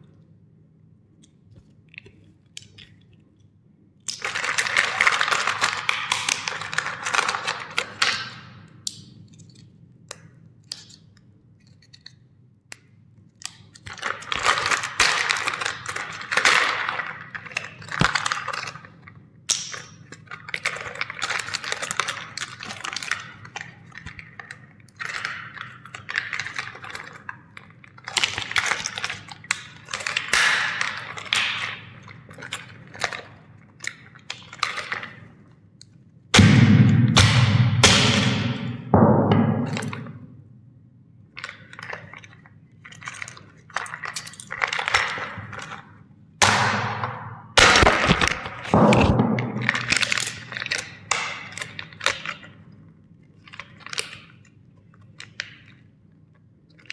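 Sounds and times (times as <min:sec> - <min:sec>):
plastic toys cracking: 0:46.4 - 0:52.4.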